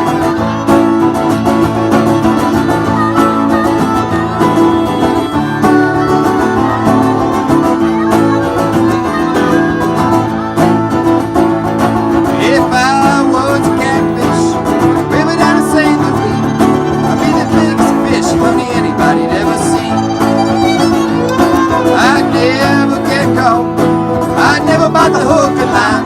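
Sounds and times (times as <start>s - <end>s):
band playing plucked strings: 0.0s - 26.0s.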